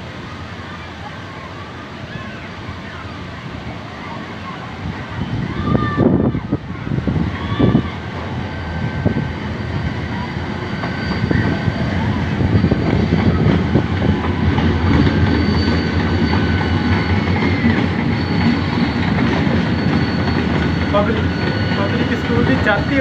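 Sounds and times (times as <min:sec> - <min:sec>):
train wheels rumbling: 0:01.9 - 0:23.0
clacking over rails: 0:10.8 - 0:23.0.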